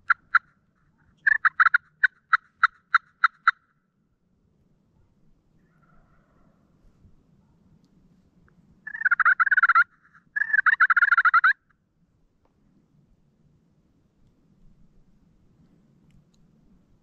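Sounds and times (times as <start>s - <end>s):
turkey gobbling: 0.0s - 0.5s, 1.2s - 3.6s, 8.9s - 11.6s.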